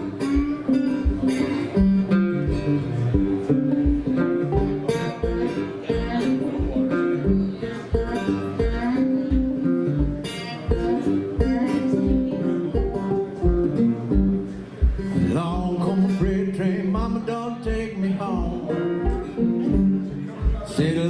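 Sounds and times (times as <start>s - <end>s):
acoustic guitar country blues: 0.0s - 21.0s
steady low thump: 14.2s - 15.7s.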